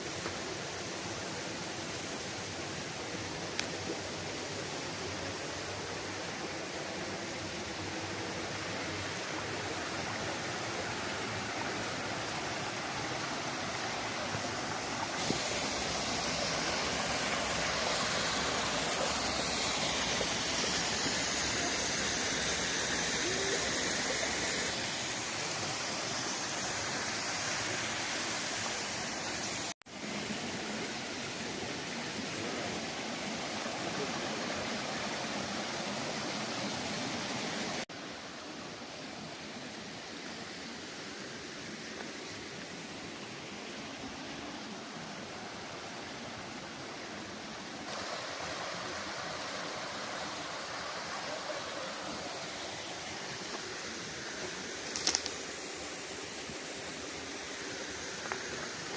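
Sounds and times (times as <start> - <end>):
waterfall roaring: 0.1 - 58.9.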